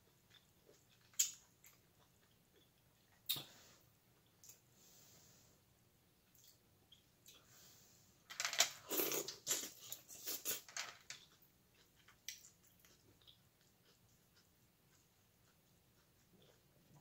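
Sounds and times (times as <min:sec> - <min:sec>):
corn crunching and chewing: 0:08.8 - 0:17.0.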